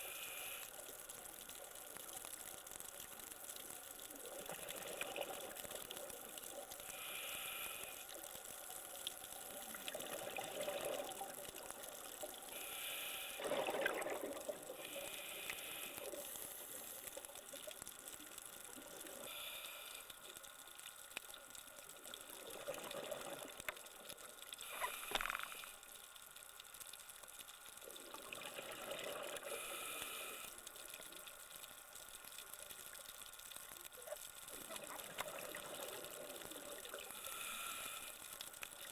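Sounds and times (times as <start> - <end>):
regulator inhale hiss: 0.0 - 1.0, 6.8 - 8.3, 12.5 - 13.5, 14.8 - 17.1, 19.1 - 20.4, 24.6 - 26.0, 29.4 - 31.0, 37.1 - 38.6
exhaled bubbles gurgling: 4.1 - 7.8, 9.4 - 12.7, 13.3 - 17.7, 22.0 - 24.0, 27.8 - 30.4, 33.9 - 38.0.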